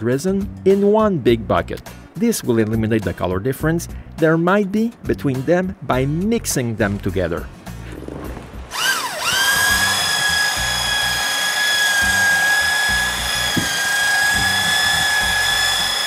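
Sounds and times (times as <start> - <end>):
background music: 0.0 - 16.0
electric drill whining: 7.7 - 16.0.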